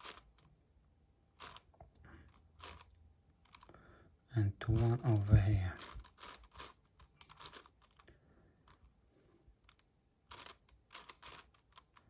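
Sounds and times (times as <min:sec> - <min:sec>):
puzzle cube plastic clicks: 0:00.0 - 0:00.6, 0:01.3 - 0:03.7, 0:04.7 - 0:08.9, 0:09.6 - 0:12.0.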